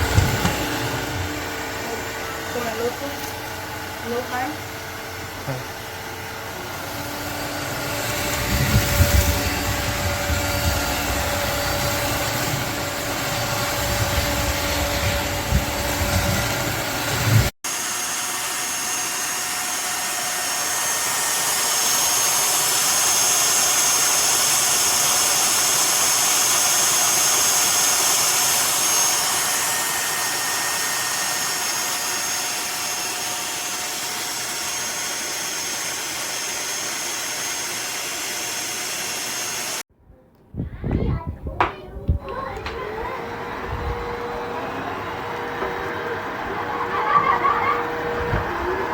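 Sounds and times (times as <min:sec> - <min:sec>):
floor vacuum motor whirring: 0:00.0 - 0:39.8, 0:41.6 - 0:48.9
high motor whine: 0:42.6 - 0:48.9.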